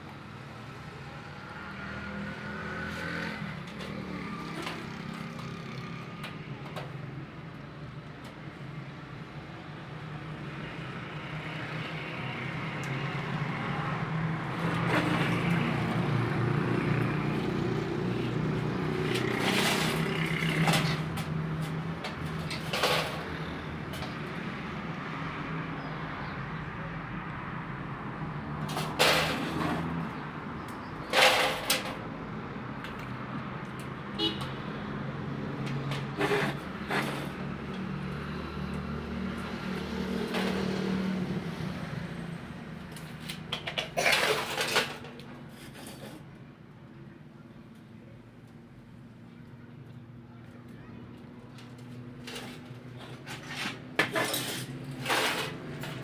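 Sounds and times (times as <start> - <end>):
sharp knocks and clatters: 43.0 - 45.3.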